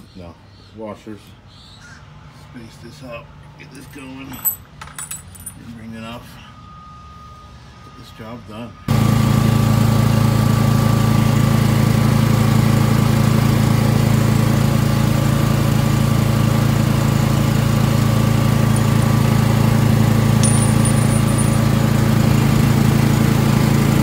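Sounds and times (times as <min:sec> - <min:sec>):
air compressor engine running: 0:08.9 - 0:24.0.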